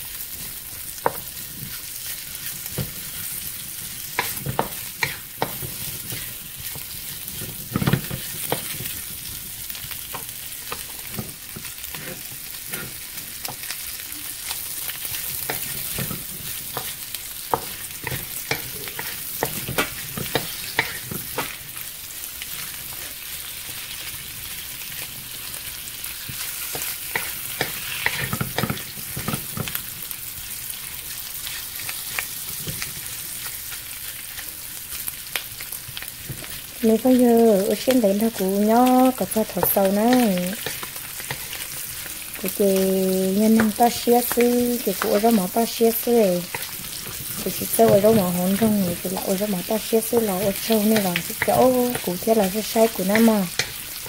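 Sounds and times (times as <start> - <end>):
pork sizzling in a pan: 0.0 - 54.0
wooden spatula scraping a pan: 1.0 - 9.5, 10.1 - 13.7, 14.8 - 21.7, 26.2 - 29.8, 43.5 - 54.0.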